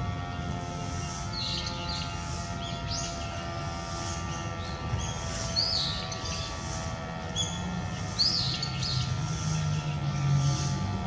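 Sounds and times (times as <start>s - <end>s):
small bird chirping: 4.3s - 6.5s.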